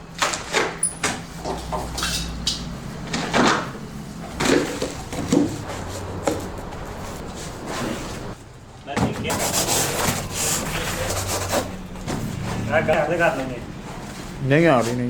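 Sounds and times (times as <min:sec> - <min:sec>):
steady low hum: 0:00.0 - 0:15.0
knocks and clunks: 0:00.1 - 0:07.4.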